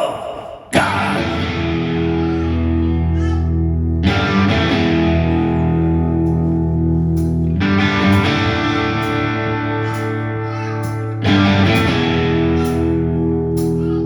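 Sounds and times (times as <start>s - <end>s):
bass line: 0.8s - 14.0s
distorted electric guitar chords: 1.0s - 14.0s.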